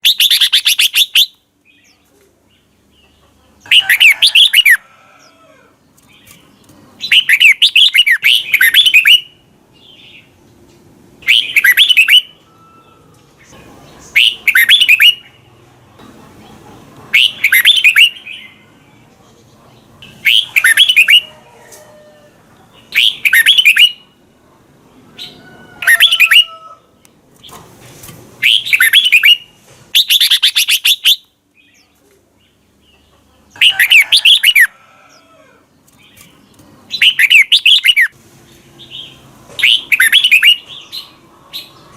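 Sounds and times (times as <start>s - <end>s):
bird singing whistled phrases: 11.2s - 12.9s, 14.2s - 15.3s, 17.2s - 18.3s, 22.9s - 24.0s, 28.4s - 29.4s, 37.0s - 38.1s, 39.6s - 40.6s.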